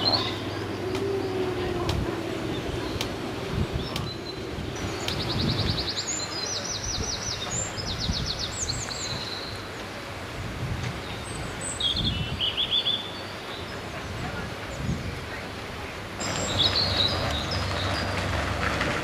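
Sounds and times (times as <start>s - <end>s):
songbird trilling: 0.0s - 9.6s
outdoor background noise: 0.0s - 19.0s.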